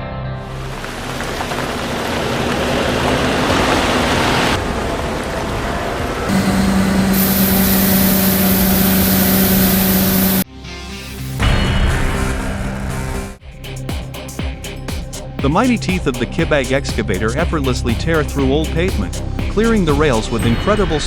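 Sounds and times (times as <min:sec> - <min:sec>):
engine hum: 0:00.2 - 0:10.4
rush of air and water mist: 0:00.5 - 0:10.4
bright high hiss: 0:06.3 - 0:10.4.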